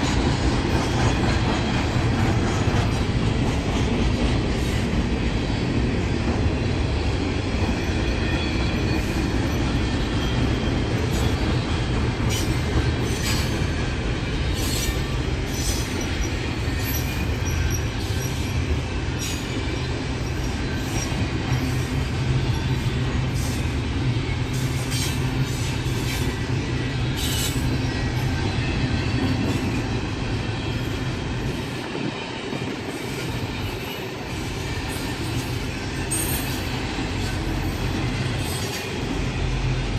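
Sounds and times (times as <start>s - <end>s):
train wheels rumbling on rails: 0.0s - 39.9s
high wheel squeals: 14.6s - 23.7s.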